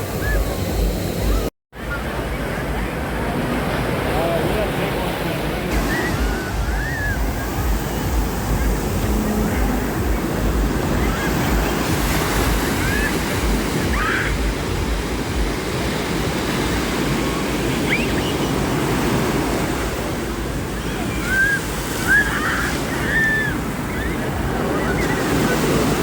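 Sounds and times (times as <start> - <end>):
ocean surf washing in: 0.0 - 26.0
wind rumbling on microphone: 0.0 - 26.0.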